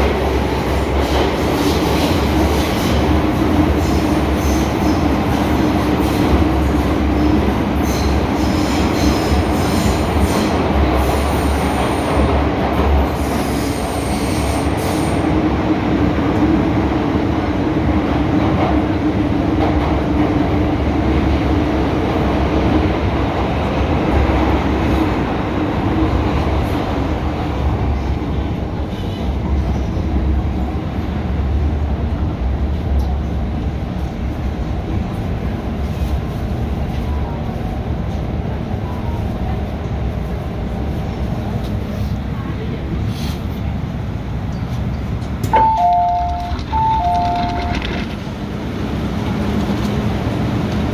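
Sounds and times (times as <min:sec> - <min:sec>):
train wheels rumbling on rail: 0:00.0 - 0:50.9.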